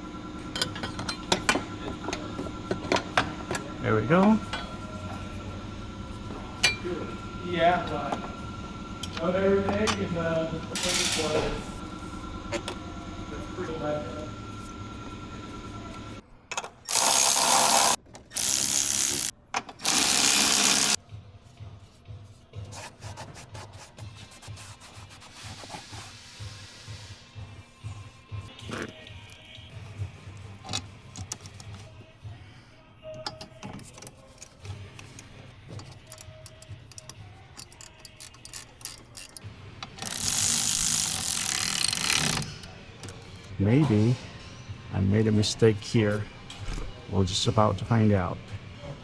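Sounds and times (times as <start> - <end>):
power tool bursts: 16.9 - 21.0
rapid ratcheting: 16.9 - 21.0, 40.0 - 42.5
parts clicking and rattling: 33.2 - 43.6.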